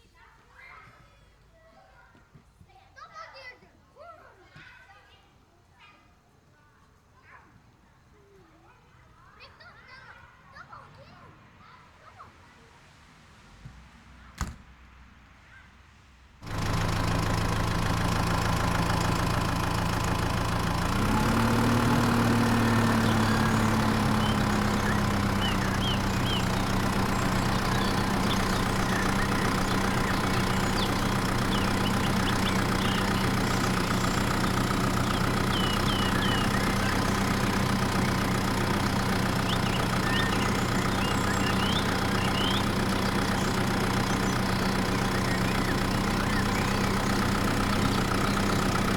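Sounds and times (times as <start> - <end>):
small engine running: 16.4 - 48.9.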